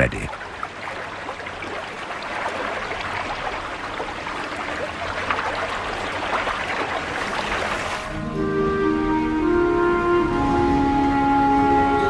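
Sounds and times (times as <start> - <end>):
river water rushing: 0.0 - 8.4
soft music with held notes: 8.1 - 12.0.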